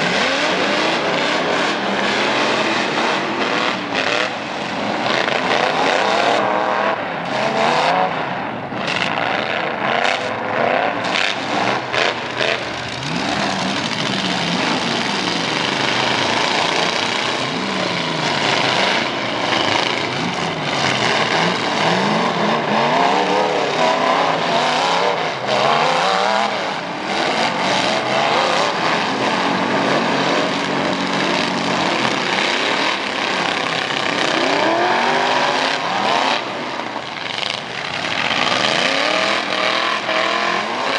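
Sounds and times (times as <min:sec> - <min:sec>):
truck engines revving: 0:00.0 - 0:40.9
engine crackles: 0:08.1 - 0:40.9.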